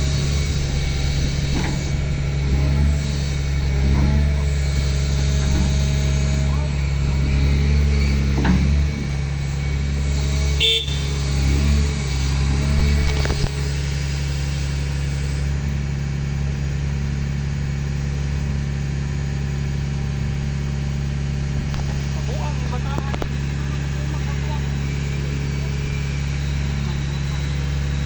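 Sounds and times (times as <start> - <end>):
short clatter: 0.0 - 9.7, 10.3 - 14.1
engine droning: 0.0 - 28.0.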